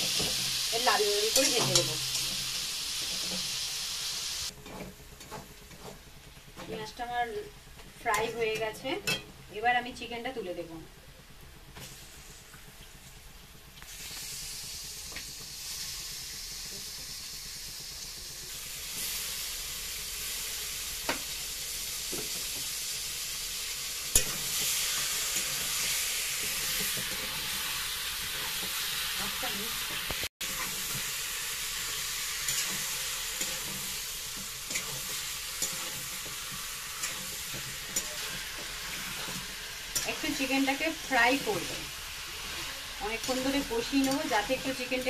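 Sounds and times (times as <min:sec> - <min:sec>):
chicken sizzling in hot oil: 0:00.0 - 0:45.0
metal spatula scraping a pan: 0:04.5 - 0:06.1, 0:29.9 - 0:45.0.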